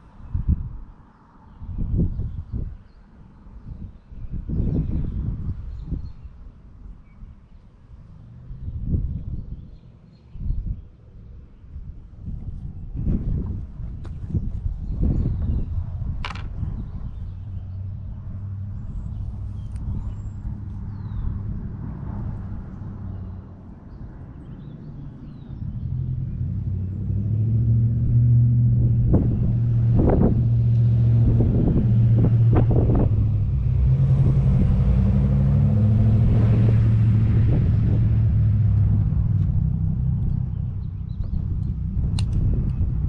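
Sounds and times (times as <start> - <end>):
vehicle engine humming: 11.1 - 43.0.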